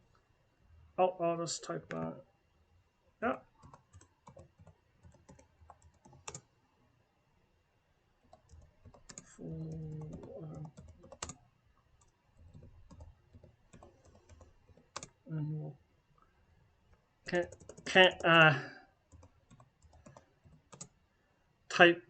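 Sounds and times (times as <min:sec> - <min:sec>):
computer keyboard typing: 0:03.6 - 0:06.5, 0:08.3 - 0:11.4, 0:12.0 - 0:15.2, 0:17.3 - 0:18.4, 0:19.1 - 0:20.9
low hummed voice: 0:09.4 - 0:10.7, 0:15.3 - 0:15.8.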